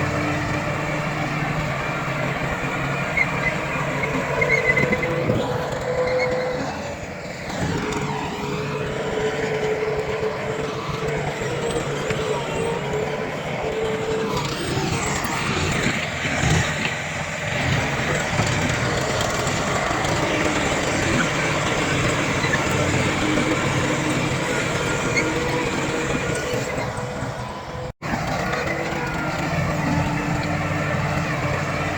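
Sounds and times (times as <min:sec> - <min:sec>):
diesel engine drone: 0:00.0 - 0:31.9
wavering squealing whine: 0:00.0 - 0:31.9.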